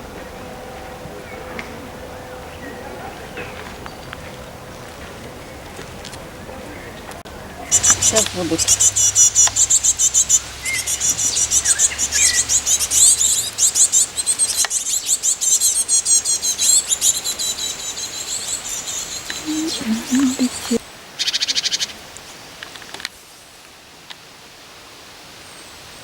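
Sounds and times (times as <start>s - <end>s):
small songbirds chirping: 6.7s - 21.9s.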